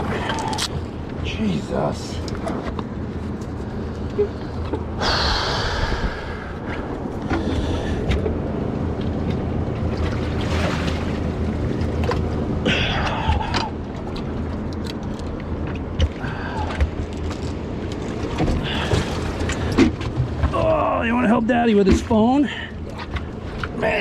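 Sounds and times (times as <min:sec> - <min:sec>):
boat engine running: 0:00.0 - 0:24.0
water noise: 0:00.0 - 0:24.0.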